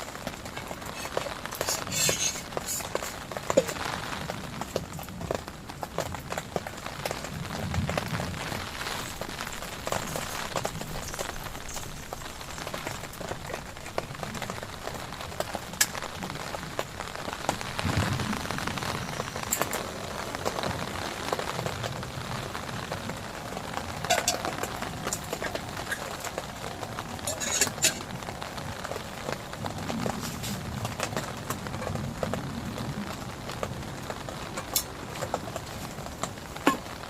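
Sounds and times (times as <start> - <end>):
heavy rain falling: 0.0 - 37.0.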